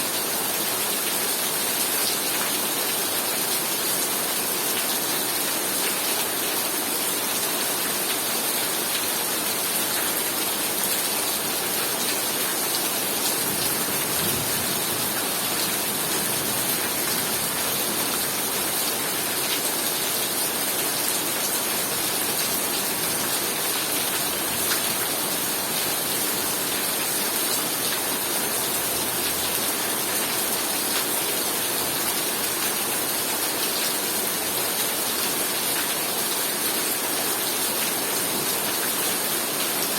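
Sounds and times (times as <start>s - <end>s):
heavy rain pouring: 0.1s - 39.9s.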